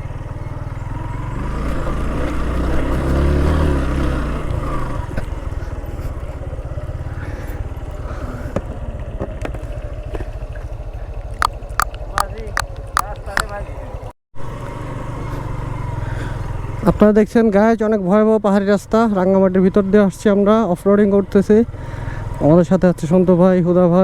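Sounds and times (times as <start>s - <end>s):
motorcycle engine running: 0.0s - 16.9s
sharp clicks: 11.4s - 13.6s.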